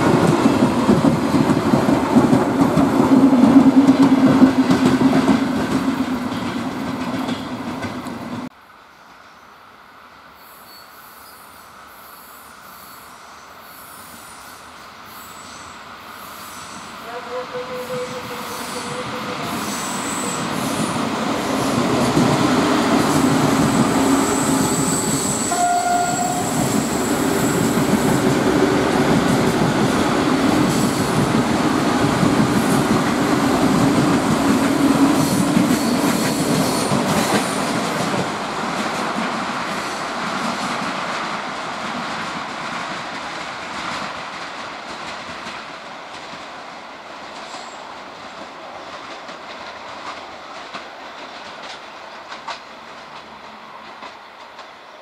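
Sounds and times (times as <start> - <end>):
train rumbling past: 0.0 - 8.5, 9.8 - 55.0
train horn blast: 17.0 - 19.8, 25.4 - 26.8.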